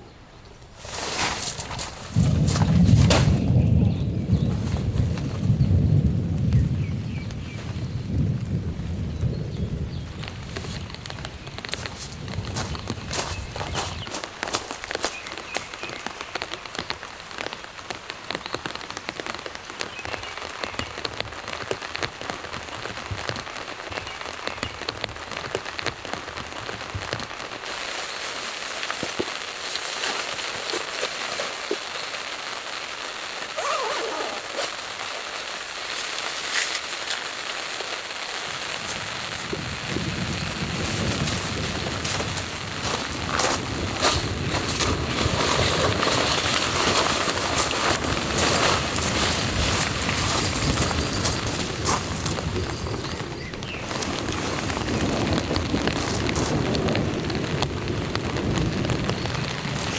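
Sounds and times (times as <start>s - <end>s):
rain falling on surfaces: 0.5s - 59.9s.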